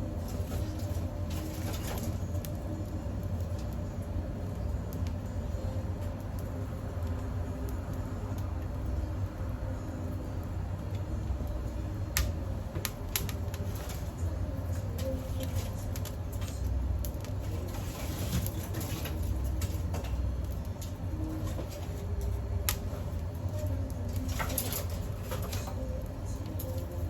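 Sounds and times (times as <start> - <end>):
steady low rumble: 0.0 - 17.9, 19.1 - 27.0
dry twigs crackling and snapping: 0.0 - 27.0.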